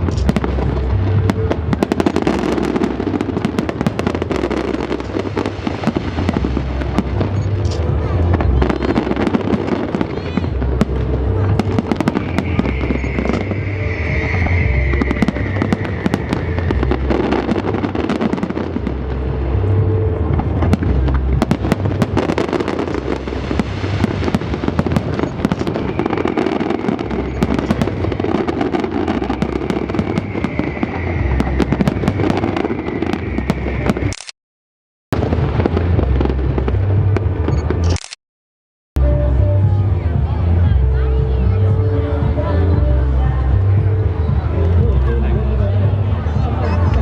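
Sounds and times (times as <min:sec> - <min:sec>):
fireworks crackling pops: 0:00.0 - 0:34.4.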